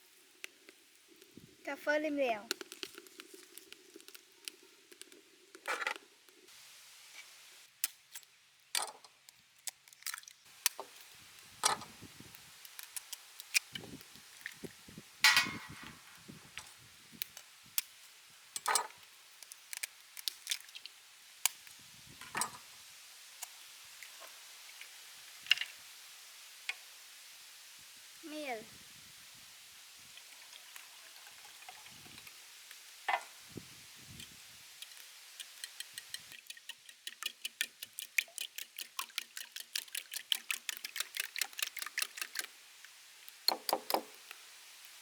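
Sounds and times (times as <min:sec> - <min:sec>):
bowl and utensils clicking: 0:15.3 - 0:16.0.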